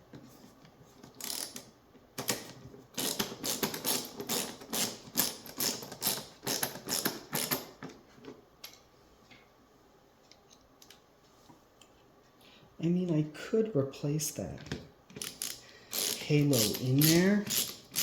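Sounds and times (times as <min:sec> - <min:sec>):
plastic parts clicking and clattering: 0:01.1 - 0:08.8.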